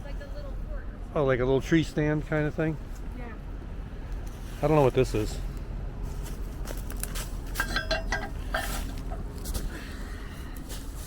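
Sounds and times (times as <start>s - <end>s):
short ringing clink: 7.6s - 8.8s.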